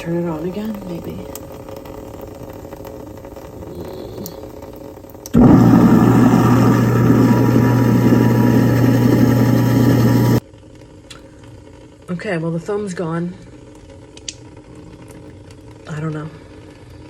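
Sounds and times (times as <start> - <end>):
garbage disposal running: 0.0 - 10.4.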